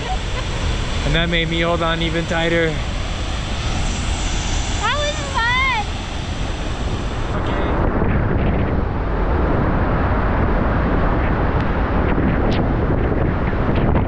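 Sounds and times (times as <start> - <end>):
waterfall roaring: 0.0 - 7.8
wind buffeting microphone: 0.0 - 14.0.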